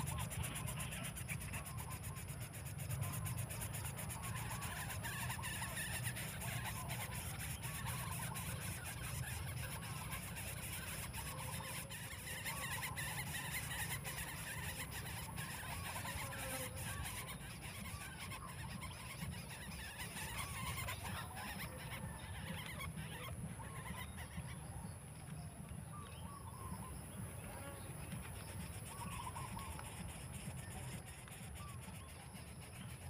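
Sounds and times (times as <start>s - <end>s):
faint wavering bird calls: 0.0s - 33.0s
low background rumble: 16.6s - 32.9s.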